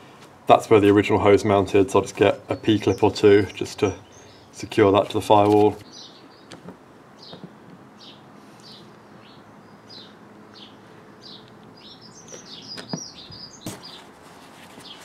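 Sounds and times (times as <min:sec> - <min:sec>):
small bird chirping: 0:05.8 - 0:06.6, 0:07.2 - 0:14.1.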